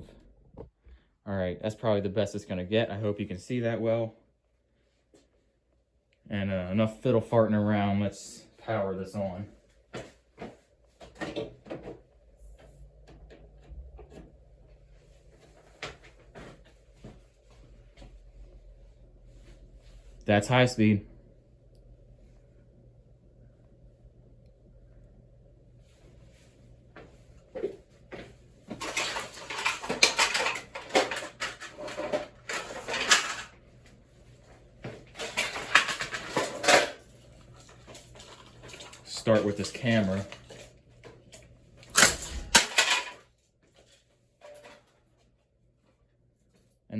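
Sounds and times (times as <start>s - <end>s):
fan motor low hum: 6.3s - 42.9s
hard objects rattling: 28.7s - 33.5s, 35.2s - 37.0s, 41.8s - 43.2s.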